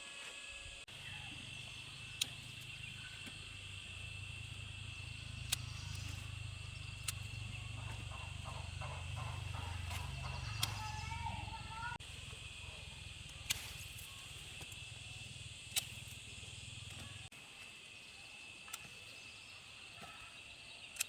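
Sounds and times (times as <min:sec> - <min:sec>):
insects chirring: 0:00.0 - 0:21.0
low steady rumble: 0:00.9 - 0:17.3
sharp clicks: 0:02.0 - 0:11.6, 0:15.6 - 0:17.3.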